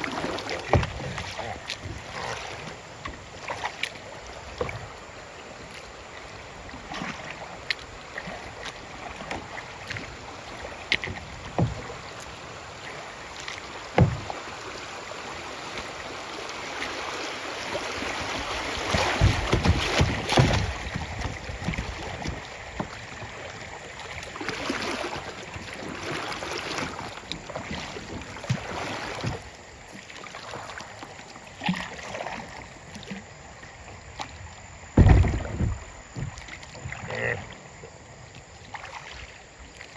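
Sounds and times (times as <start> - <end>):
paddle splashing in water: 0.0 - 39.9
sharp knocks: 14.0 - 14.3, 35.0 - 36.4.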